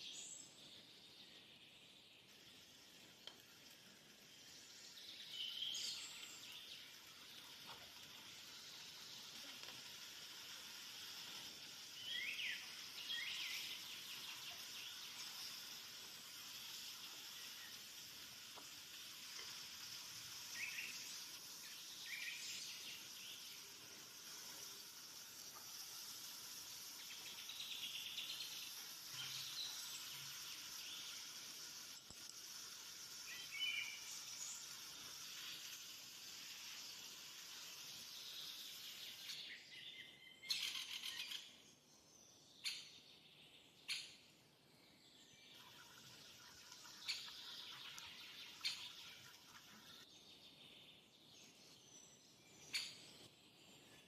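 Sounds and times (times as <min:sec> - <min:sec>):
food sizzling in a pan: 0:02.3 - 0:39.8, 0:45.5 - 0:50.1.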